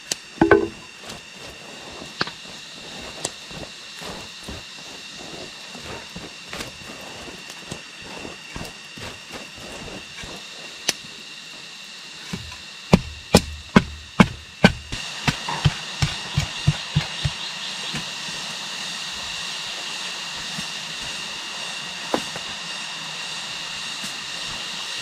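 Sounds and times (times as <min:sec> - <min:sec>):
high-pitched whine: 0:00.0 - 0:25.0
hand tool strikes: 0:00.1 - 0:01.0, 0:12.3 - 0:17.4.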